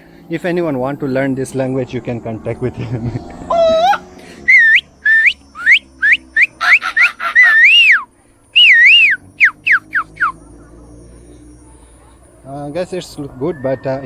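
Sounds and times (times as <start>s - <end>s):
man whistling sliding calls: 4.5s - 10.4s.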